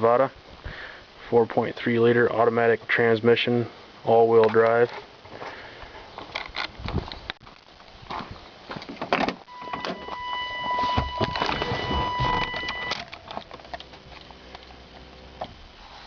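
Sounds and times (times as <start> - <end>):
door and keys handling: 9.0 - 14.3
electronic warning tone: 9.5 - 14.1.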